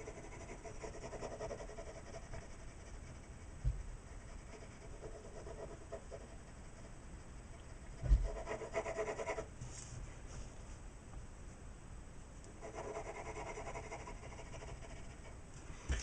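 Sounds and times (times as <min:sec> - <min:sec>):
pencil shading on paper: 0:00.0 - 0:09.5, 0:12.6 - 0:15.4.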